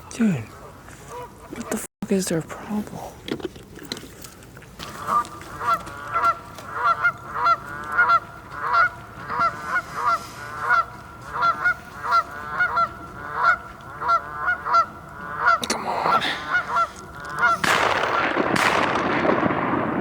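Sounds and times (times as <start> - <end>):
goose honking: 0.5 - 1.9, 4.8 - 17.6.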